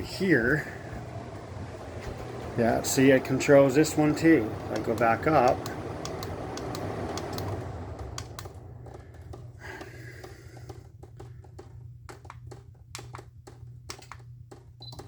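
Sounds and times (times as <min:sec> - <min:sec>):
air conditioners humming: 0:00.0 - 0:15.0.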